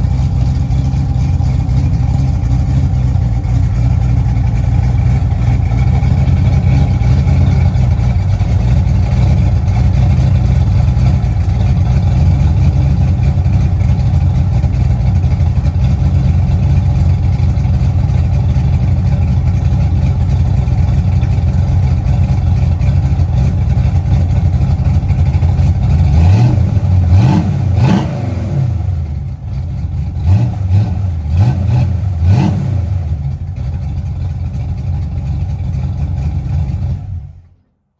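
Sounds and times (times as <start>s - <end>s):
car engine idling: 0.0s - 37.8s
engine revving in throttle blips: 25.8s - 33.4s.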